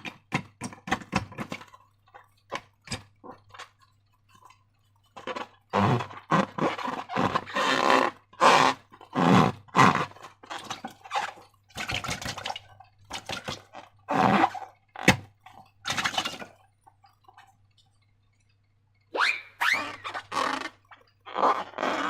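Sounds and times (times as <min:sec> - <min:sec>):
rising squeak: 0:19.2 - 0:20.2.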